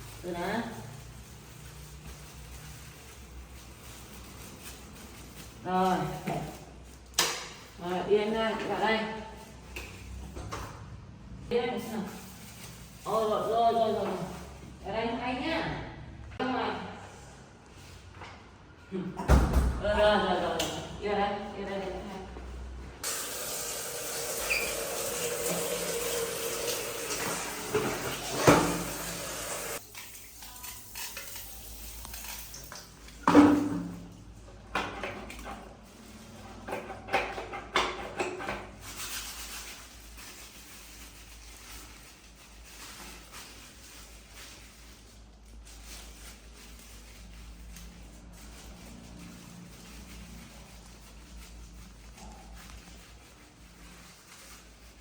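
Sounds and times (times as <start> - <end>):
tap water running: 23.0 - 32.9.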